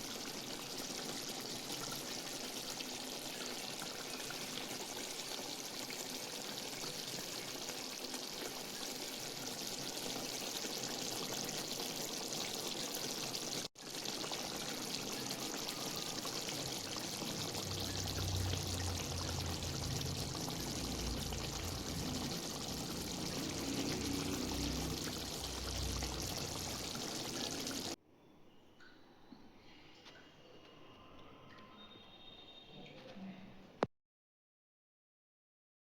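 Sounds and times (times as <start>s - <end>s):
food sizzling in a pan: 0.0s - 28.0s
low rumble: 18.0s - 26.9s.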